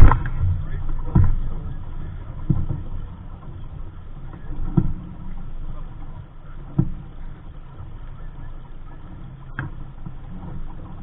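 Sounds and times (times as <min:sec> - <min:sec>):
sharp thumps: 0:00.0 - 0:01.8
wind rumbling on microphone: 0:00.0 - 0:11.0.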